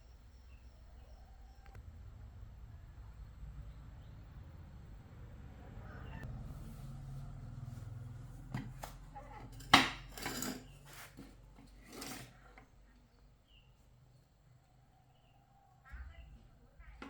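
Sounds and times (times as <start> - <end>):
scraping and rubbing sounds: 6.2 - 12.8.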